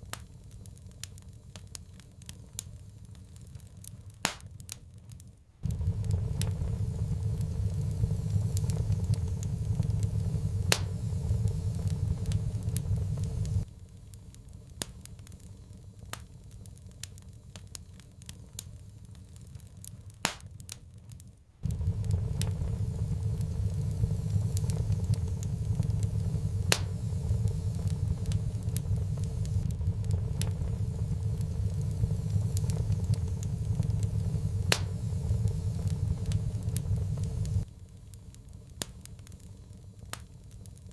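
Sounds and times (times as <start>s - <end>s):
wood fire crackling and popping: 0.0s - 40.9s
steady low rumble: 5.6s - 14.7s, 21.6s - 38.7s.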